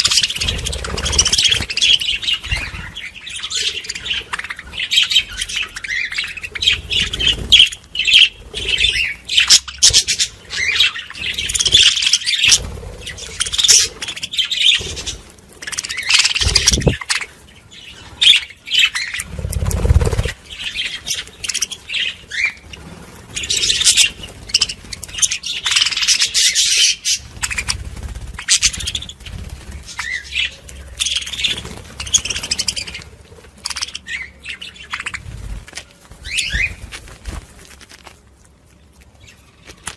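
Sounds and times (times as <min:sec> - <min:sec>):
budgerigars chattering: 0:00.0 - 0:17.3.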